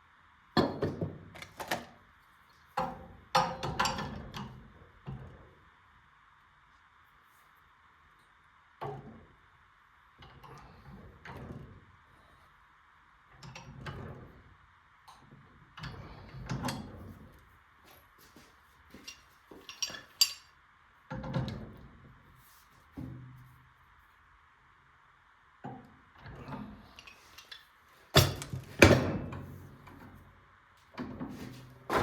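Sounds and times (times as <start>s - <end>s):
tools and metal parts clinking: 18.9s - 20.5s, 27.0s - 29.2s.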